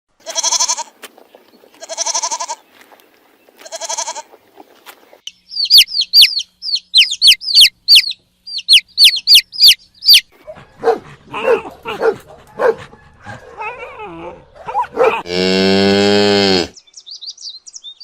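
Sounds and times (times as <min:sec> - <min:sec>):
goat bleating: 0:00.2 - 0:01.0, 0:01.7 - 0:02.7, 0:03.6 - 0:04.3
bird chirping: 0:05.0 - 0:15.2, 0:16.6 - 0:18.0.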